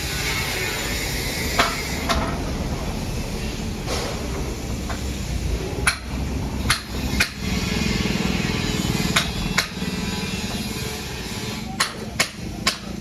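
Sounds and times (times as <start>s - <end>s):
sharp knocks of hard objects: 5.8s - 7.4s, 9.1s - 9.8s, 11.8s - 13.0s.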